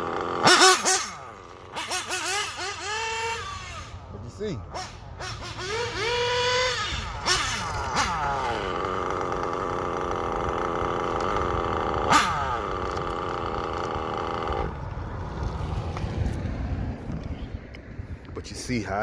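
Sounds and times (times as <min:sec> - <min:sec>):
small nitro engine revving: 0:00.0 - 0:16.4.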